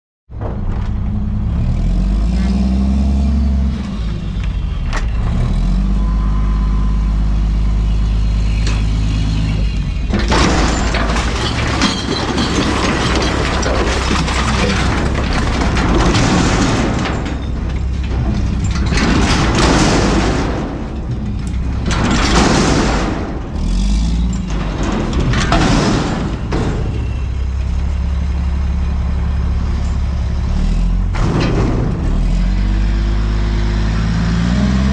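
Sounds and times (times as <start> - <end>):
garbage truck diesel engine revving: 1.0 - 34.9
refuse clattering into hopper: 10.0 - 28.0, 31.1 - 32.8.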